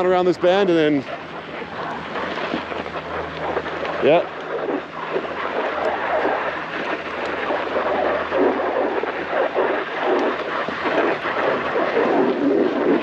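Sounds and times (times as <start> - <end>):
snowboard scraping over snow: 7.4 - 13.0.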